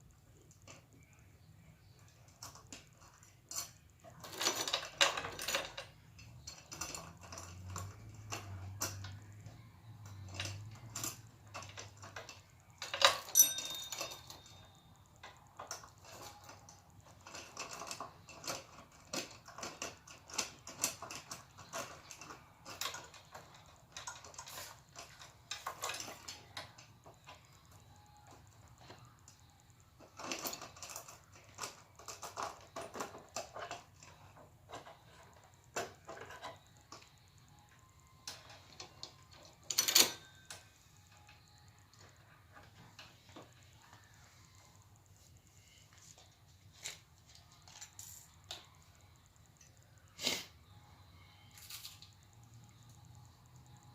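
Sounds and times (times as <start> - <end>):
metal chain clinking and rattling: 2.2 - 28.1, 38.2 - 44.1.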